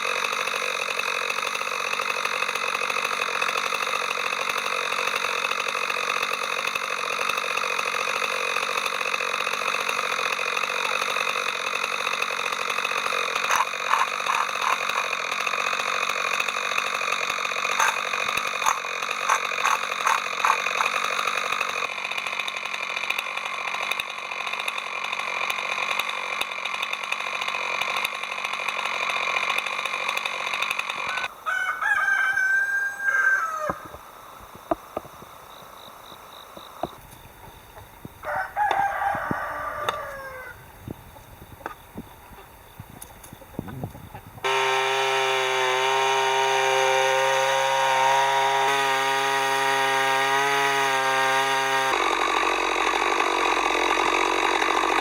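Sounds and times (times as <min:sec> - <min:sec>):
rooster crowing: 0:13.5 - 0:14.8, 0:31.0 - 0:34.0, 0:38.2 - 0:40.7.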